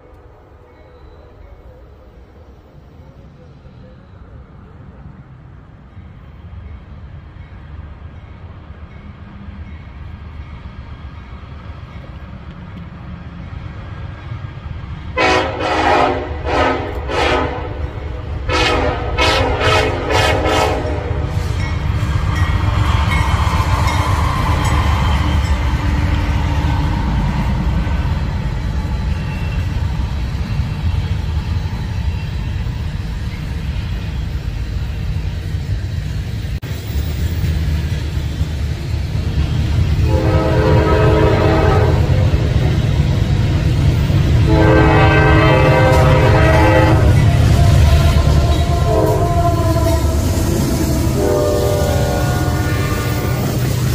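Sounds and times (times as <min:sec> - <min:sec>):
train wheels on rails: 0:05.3 - 0:53.9
diesel locomotive rumble: 0:07.3 - 0:53.9
train horn blasts: 0:15.2 - 0:21.6, 0:40.0 - 0:42.4, 0:44.3 - 0:53.8.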